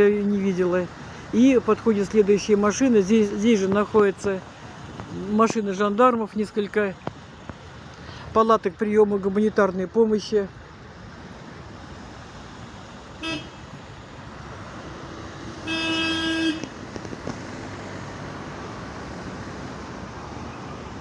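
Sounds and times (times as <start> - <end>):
slow-moving traffic: 0.0 - 21.0
vehicle horn beep: 13.2 - 13.6, 15.6 - 16.7.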